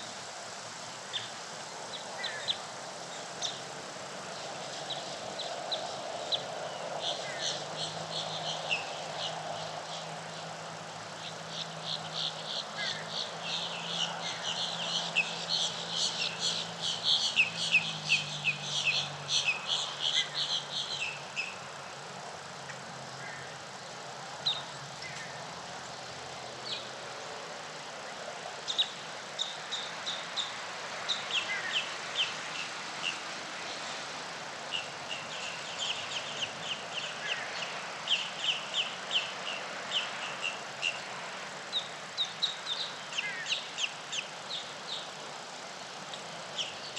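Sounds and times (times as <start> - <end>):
steady background hiss: 0.0 - 46.9
small birds chirping: 0.9 - 27.1, 27.8 - 34.0, 34.6 - 46.9.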